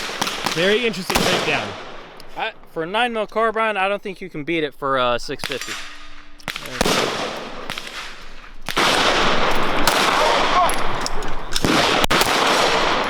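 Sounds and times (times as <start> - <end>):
gunshots with echo: 0.0 - 2.7, 5.4 - 13.0.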